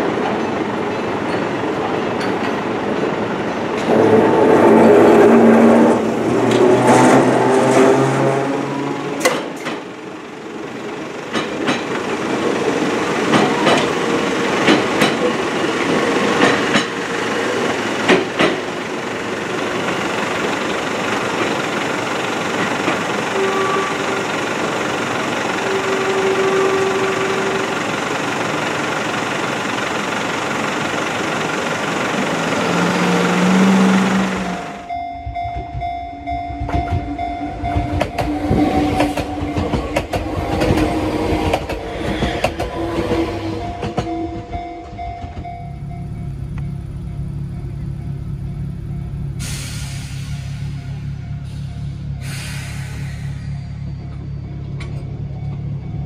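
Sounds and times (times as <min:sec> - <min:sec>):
electric train running rush: 0:00.0 - 0:56.0
low train rumble with tones: 0:00.0 - 0:56.0
wheels clicking over rail joints: 0:09.2 - 0:10.0, 0:10.8 - 0:32.8, 0:36.6 - 0:46.7.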